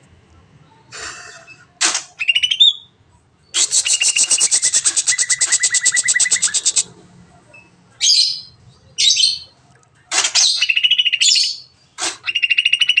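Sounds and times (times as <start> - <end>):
loud bird calls and trills: 2.2 - 6.9, 7.6 - 9.6, 10.3 - 13.0
bird singing rapid notes: 3.5 - 6.9
harsh scratchy bird calls: 3.5 - 6.9, 10.1 - 13.0.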